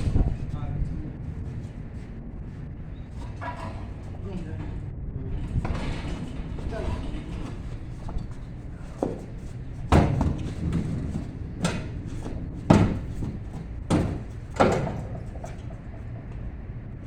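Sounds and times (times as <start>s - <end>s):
irregular knocks and thumps: 7.4s - 16.5s.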